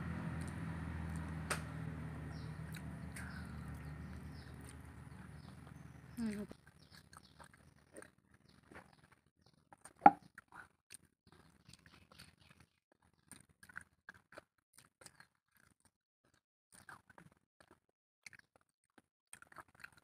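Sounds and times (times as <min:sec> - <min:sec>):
person chewing: 0:02.6 - 0:08.8, 0:19.3 - 0:20.0.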